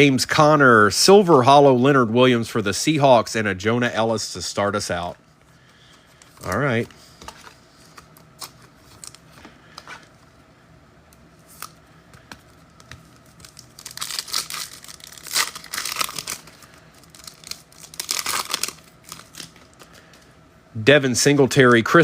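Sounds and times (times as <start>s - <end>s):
wrapper tearing and crinkling: 8.3s - 9.3s, 12.5s - 19.9s.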